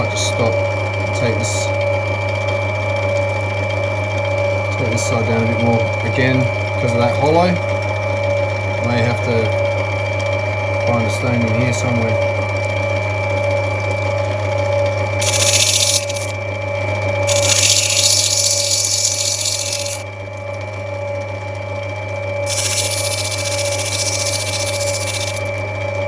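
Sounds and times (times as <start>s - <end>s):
stone grinding on wheel: 15.2s - 16.3s, 17.3s - 20.0s, 22.5s - 25.6s
grinding wheel humming: 15.2s - 16.4s, 17.3s - 20.0s, 22.4s - 25.6s.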